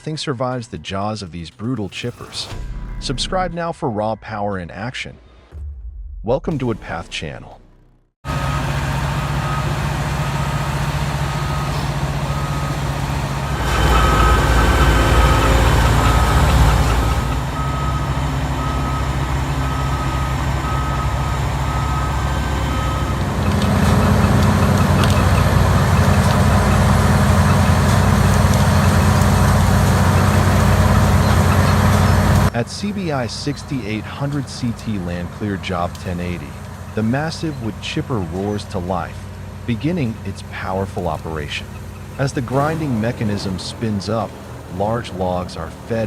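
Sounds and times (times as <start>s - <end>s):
reversing alarm beeping: 8.3s - 39.0s
heavy machinery engine under load: 8.3s - 46.0s.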